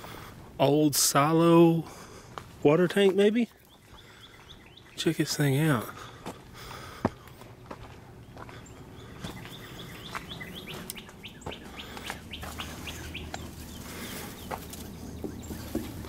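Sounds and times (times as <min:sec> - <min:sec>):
wild birds chirping: 0:00.0 - 0:16.0.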